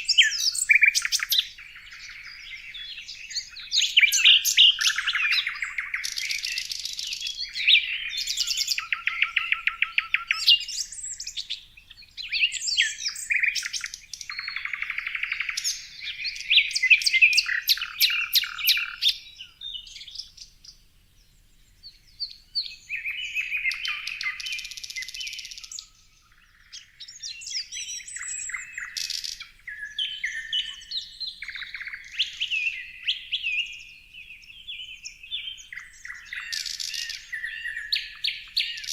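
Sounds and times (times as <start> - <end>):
birds singing and chirping: 0.0 - 38.9.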